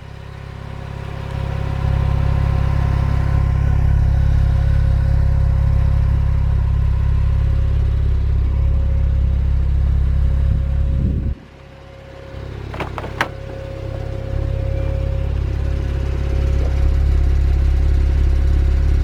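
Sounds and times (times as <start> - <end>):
car engine idling: 12.7 - 16.0.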